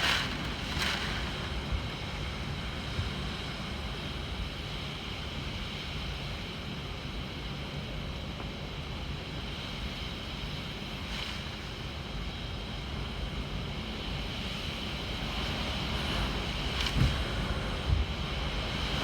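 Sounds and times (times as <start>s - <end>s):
wind gusts buffeting microphone: 15.0s - 19.0s.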